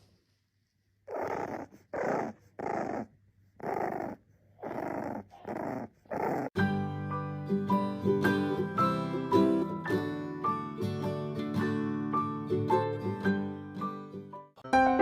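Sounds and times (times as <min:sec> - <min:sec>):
animal raspy growls: 0:01.1 - 0:06.6
plucked-string music: 0:14.6 - 0:15.0.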